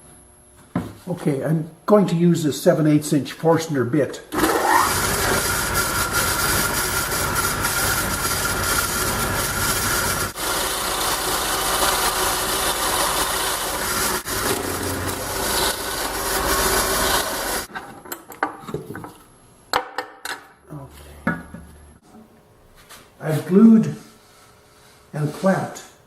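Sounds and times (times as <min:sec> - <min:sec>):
power drill boring into wood: 0:04.4 - 0:17.7.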